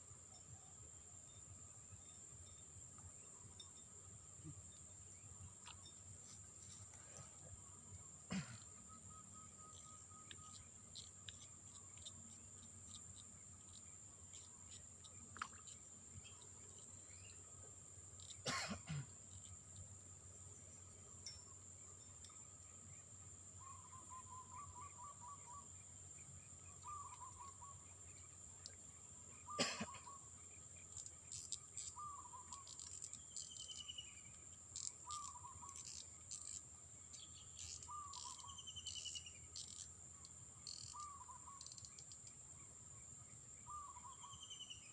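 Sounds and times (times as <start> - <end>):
high-pitched insect drone: 0.3 - 17.5, 29.4 - 42.4
short chirping call: 23.6 - 25.7, 26.7 - 27.9, 31.3 - 36.6, 37.2 - 39.9, 40.6 - 42.1.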